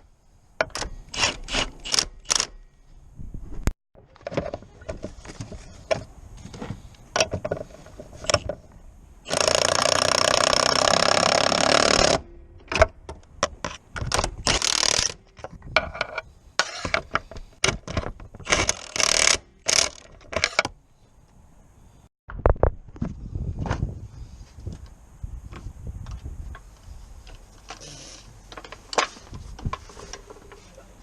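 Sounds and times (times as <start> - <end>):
tool clicks and scrapes: 0.7 - 2.6, 13.6 - 20.8
power tool whirring: 9.3 - 12.2.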